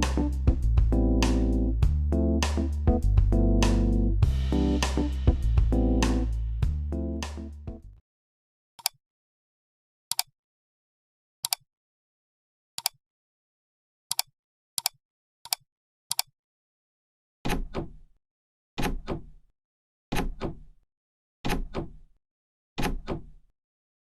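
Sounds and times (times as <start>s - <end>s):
sharp clicks: 10.1s - 10.3s, 14.1s - 16.3s.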